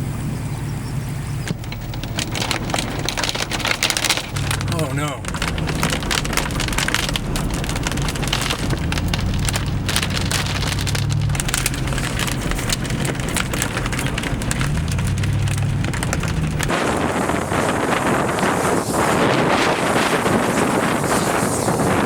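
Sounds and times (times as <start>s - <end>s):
low rumble: 0.0s - 16.8s
wind buffeting microphone: 0.0s - 22.0s
heavy rain pelting: 1.4s - 21.9s.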